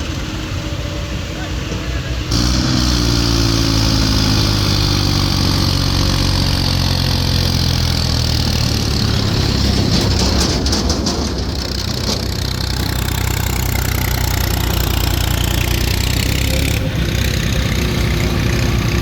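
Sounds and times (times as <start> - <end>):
diesel tractor engine running: 0.0 - 19.0.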